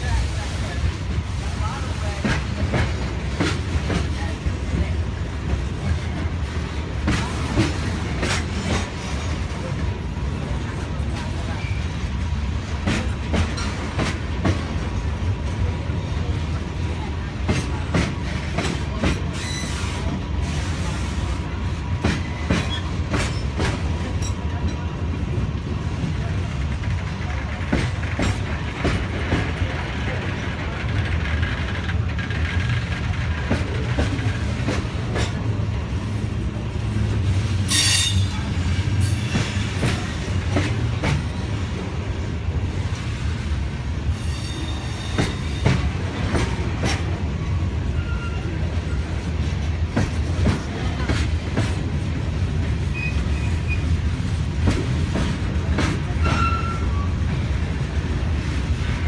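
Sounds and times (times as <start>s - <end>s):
train wheels rumbling on rail: 0.0s - 59.0s
high wheel squeals: 44.1s - 45.6s, 48.0s - 49.0s.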